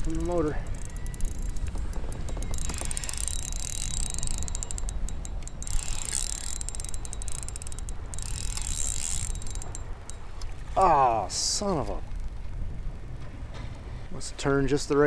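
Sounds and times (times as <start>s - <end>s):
fishing reel clicking: 0.0s - 10.7s
low wind rumble: 0.0s - 15.0s.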